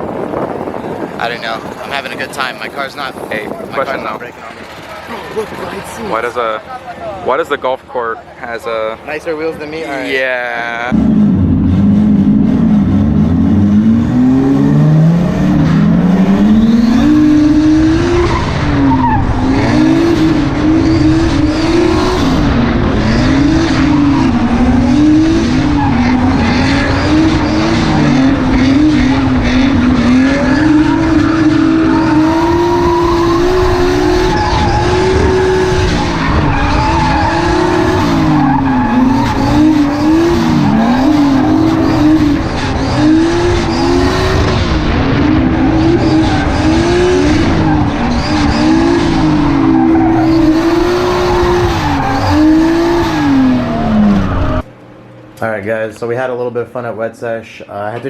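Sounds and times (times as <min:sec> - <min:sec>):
tyres skidding: 0:00.0 - 0:54.7
car engine revving: 0:10.4 - 0:54.7.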